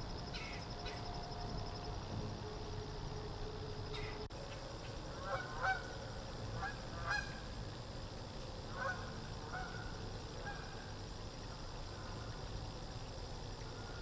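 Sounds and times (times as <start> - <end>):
background hiss: 0.0 - 14.0
bird calls: 0.3 - 1.1, 3.9 - 4.6.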